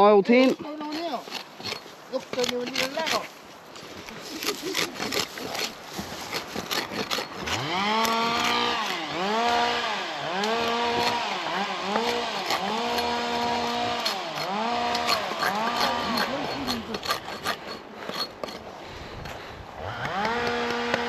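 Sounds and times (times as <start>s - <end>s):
rustling: 0.4s - 9.0s
chainsaw revving: 6.6s - 17.6s, 19.8s - 21.0s.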